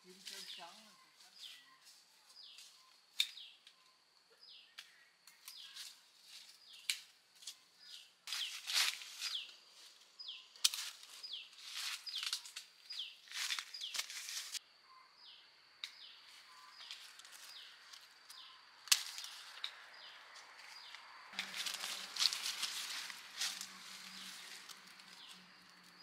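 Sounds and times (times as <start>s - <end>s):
rustling branches and leaves: 0.0s - 3.8s, 4.8s - 14.6s, 16.2s - 26.0s
small bird chirping: 0.1s - 26.0s
branch snapping: 6.8s - 7.1s, 10.6s - 11.1s, 11.9s - 12.7s, 16.9s - 19.8s.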